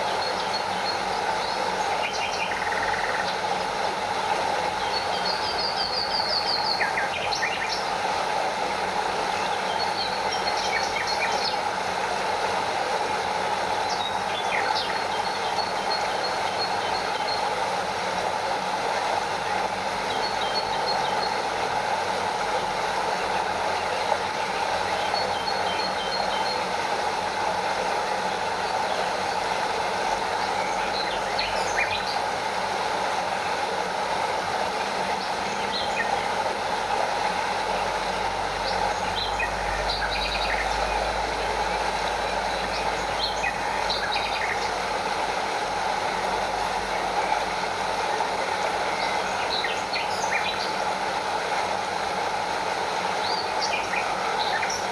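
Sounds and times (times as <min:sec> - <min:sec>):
stream and waterfall rushing: 0:00.0 - 0:54.9
birds chirping: 0:37.2 - 0:45.0.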